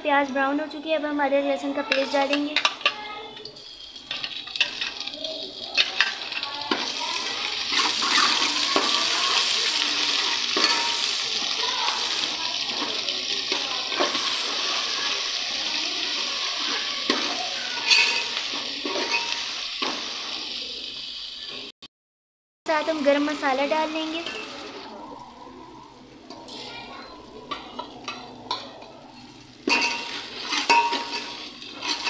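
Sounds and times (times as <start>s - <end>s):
paste sizzling in hot oil: 0.1s - 21.7s, 22.7s - 32.0s
steel spoon scraping a pot: 1.9s - 9.1s, 16.6s - 19.9s, 27.5s - 32.0s.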